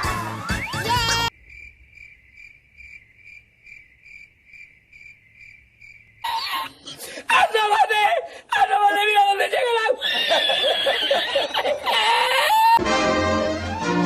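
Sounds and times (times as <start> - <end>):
music: 0.0 - 1.3, 12.8 - 14.0
crickets chirping: 1.3 - 7.2.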